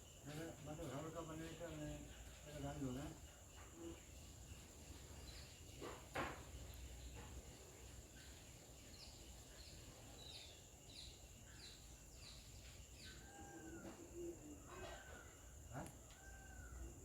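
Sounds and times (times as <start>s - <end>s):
bird chirping: 8.1s - 16.8s.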